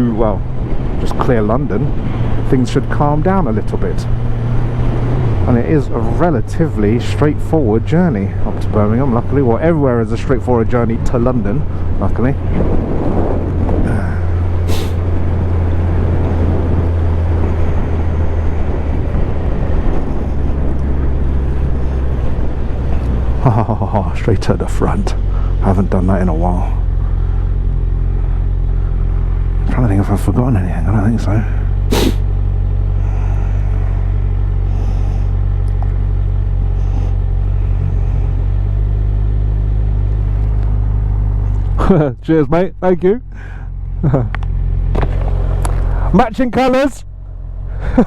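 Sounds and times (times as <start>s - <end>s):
motorcycle engine running: 0.0s - 46.1s
wind noise on microphone: 12.4s - 23.4s
motorcycle engine idling: 23.4s - 41.9s.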